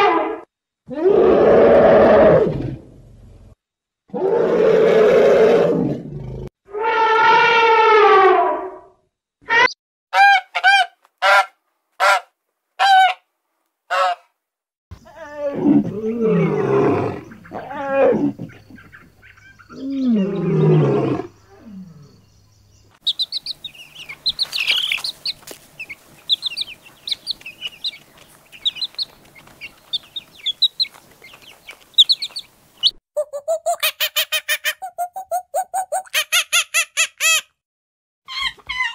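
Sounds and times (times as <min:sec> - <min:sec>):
goose honking: 0:13.9 - 0:14.2
lion cubs calling: 0:15.0 - 0:21.8
macaques squeaking: 0:23.0 - 0:28.0, 0:38.3 - 0:38.9.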